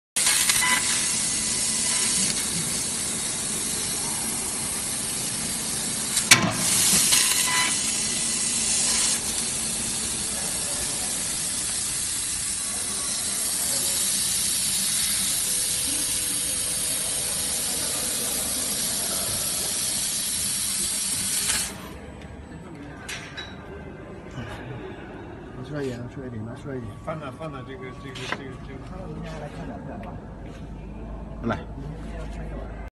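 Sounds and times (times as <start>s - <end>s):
laser cutter hissing: 0.2s - 22.0s.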